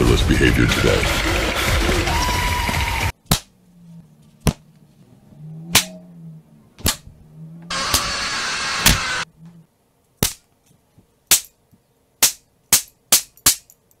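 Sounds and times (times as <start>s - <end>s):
harsh burst of noise: 7.7s - 9.2s.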